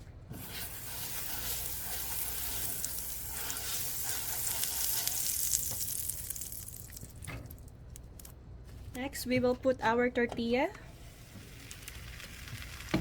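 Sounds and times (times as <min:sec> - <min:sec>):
butter sizzling in a pan: 0:00.4 - 0:07.1, 0:11.1 - 0:13.0.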